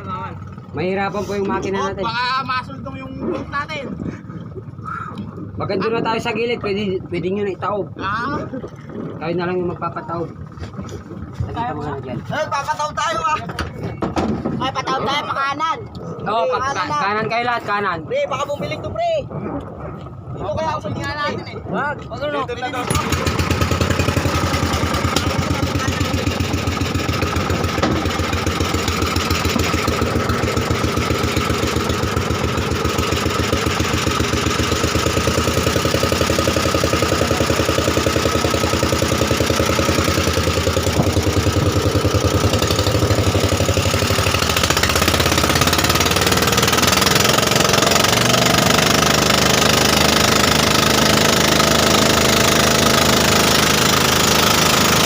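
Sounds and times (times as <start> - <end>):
boat engine chugging: 0.0 - 55.0.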